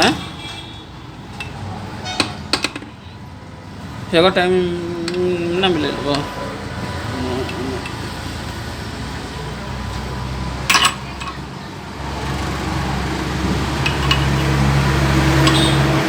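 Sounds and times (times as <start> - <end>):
sharp metallic clank: 15.3 - 15.9.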